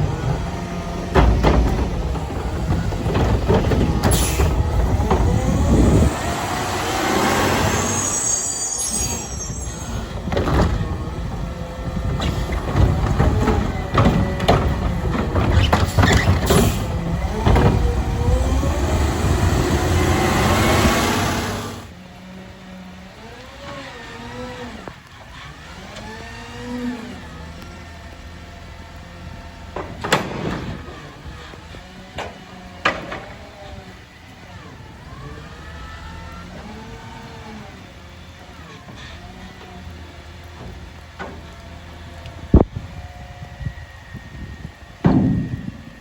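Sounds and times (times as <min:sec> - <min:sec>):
clanking and banging: 0:00.0 - 0:21.8, 0:29.7 - 0:31.5, 0:32.1 - 0:33.8, 0:45.0 - 0:46.0
garbage truck engine revving: 0:00.0 - 0:46.0
rising and falling whines: 0:04.4 - 0:10.6, 0:17.2 - 0:21.9.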